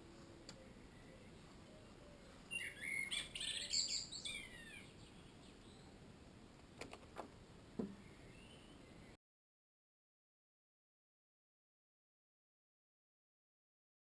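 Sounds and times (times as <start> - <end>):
faint background hiss: 0.0 - 9.2
bird chirping and whistling: 2.5 - 5.0.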